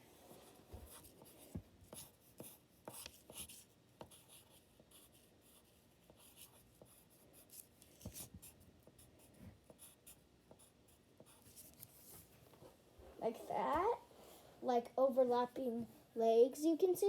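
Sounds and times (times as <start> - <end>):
pencil scratching on paper: 0.2 - 12.2.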